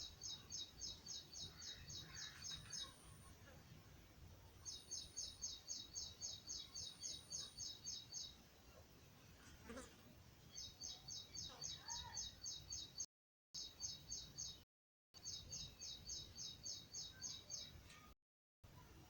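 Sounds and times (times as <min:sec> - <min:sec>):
small bird chirping: 0:00.0 - 0:03.6, 0:04.6 - 0:08.4, 0:10.5 - 0:14.6, 0:15.2 - 0:18.1.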